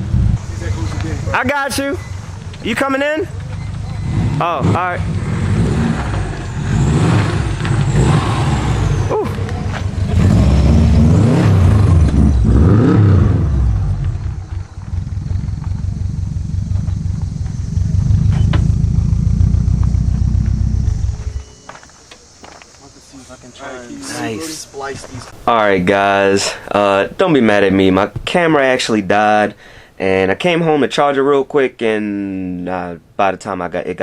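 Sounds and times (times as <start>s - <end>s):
car engine revving and rumbling: 0.0s - 21.5s.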